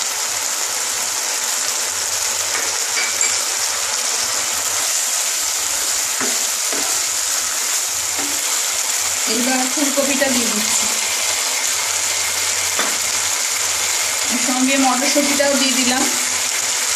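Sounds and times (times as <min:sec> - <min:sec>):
masala sizzling in a pan: 0:00.0 - 0:16.9
wooden spatula scraping a pan: 0:04.0 - 0:09.0.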